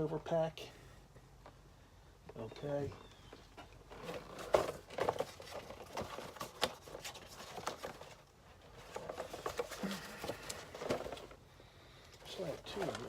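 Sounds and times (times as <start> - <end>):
packaging knocks taps and rustles: 3.6 - 11.4.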